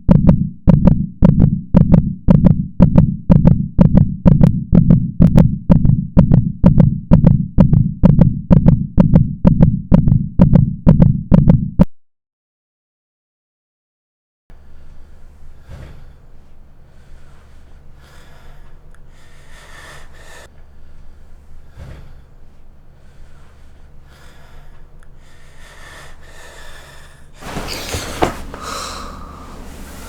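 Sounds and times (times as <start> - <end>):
low steady hum: 14.5 - 30.0
person breathing heavily: 14.6 - 30.0
person gasping: 14.6 - 30.0.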